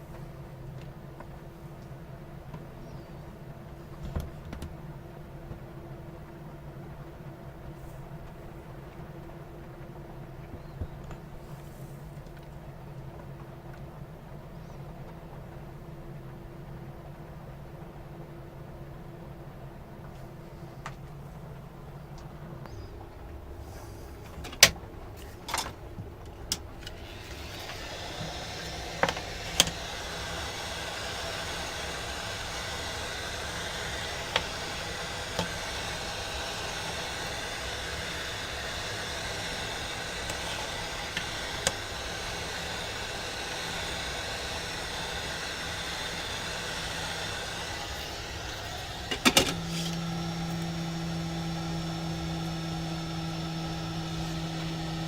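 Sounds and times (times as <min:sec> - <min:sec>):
low electrical hum: 0:00.0 - 0:55.0
machine whirring: 0:26.3 - 0:55.0.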